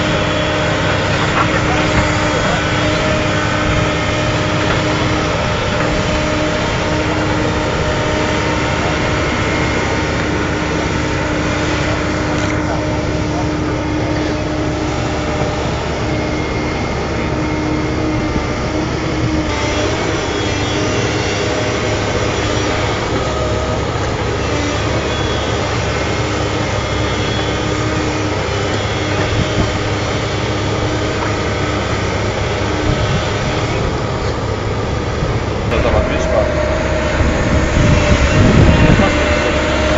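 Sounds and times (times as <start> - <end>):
excavator diesel engine: 0.0 - 39.9
steady whine: 0.0 - 39.9.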